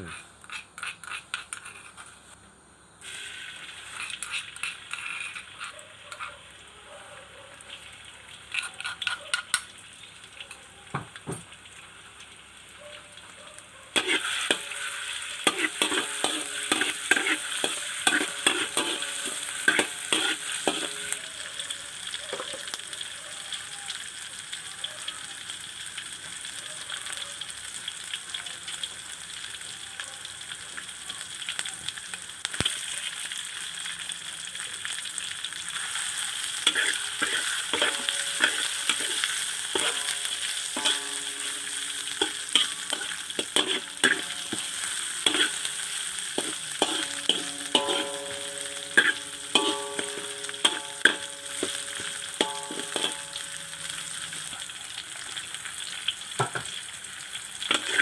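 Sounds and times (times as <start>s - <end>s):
food sizzling in hot oil: 0.0s - 58.0s
metal spatula scraping pan: 0.1s - 2.4s, 3.8s - 6.4s, 14.0s - 21.2s, 35.8s - 54.6s, 57.7s - 58.0s
metal spatula clinking on pan: 8.5s - 9.7s, 14.0s - 21.5s, 36.6s - 54.6s, 57.7s - 58.0s.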